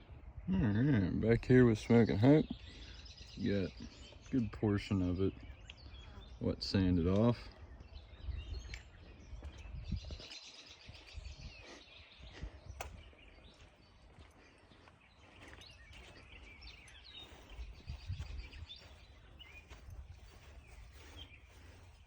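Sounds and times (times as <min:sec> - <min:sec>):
small birds chirping trills: 0:00.0 - 0:22.0.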